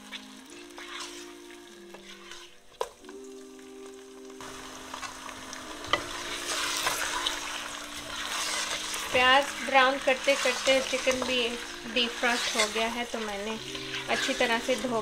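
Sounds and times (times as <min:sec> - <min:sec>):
spatula scraping a pot: 0:00.0 - 0:02.8, 0:05.9 - 0:15.0
chicken and onions frying in oil: 0:00.0 - 0:15.0.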